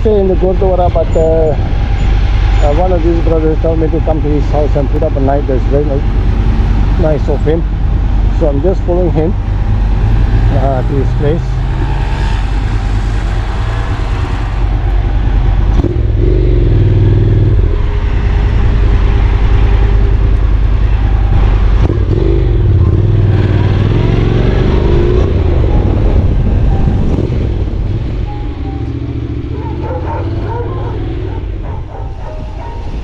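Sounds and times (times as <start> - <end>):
motorcycle engine revving: 0.2 - 33.0
wind noise: 17.4 - 28.6, 29.9 - 33.0.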